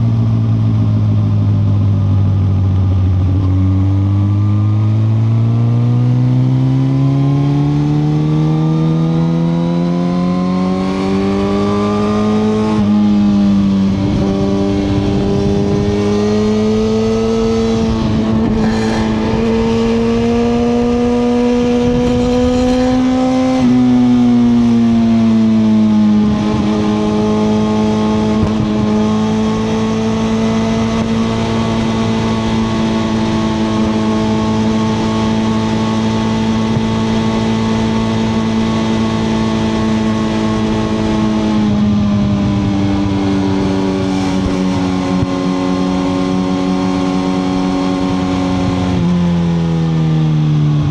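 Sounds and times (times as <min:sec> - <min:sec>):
motorcycle engine revving: 0:00.0 - 0:50.9
road and wind rush: 0:00.0 - 0:50.9.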